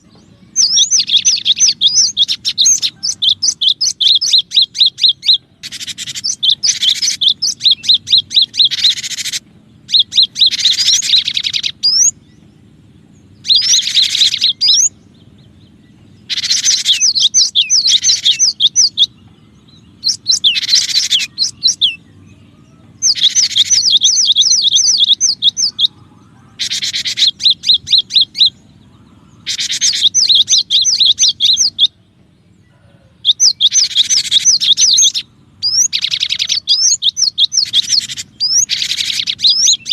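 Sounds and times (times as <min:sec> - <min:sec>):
bird chirping high-pitched: 0:00.0 - 0:39.9.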